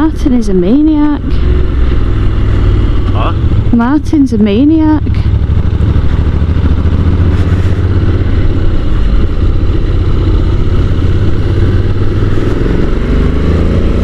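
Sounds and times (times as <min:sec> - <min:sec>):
motorcycle engine chugging uphill: 0:00.0 - 0:14.0
wind rushing over microphone: 0:00.8 - 0:14.0.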